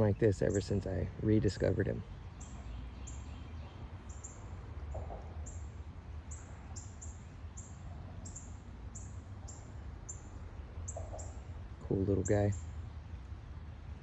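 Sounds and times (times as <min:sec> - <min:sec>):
low outdoor rumble: 0:00.0 - 0:14.0
small bird chirping: 0:02.3 - 0:12.8.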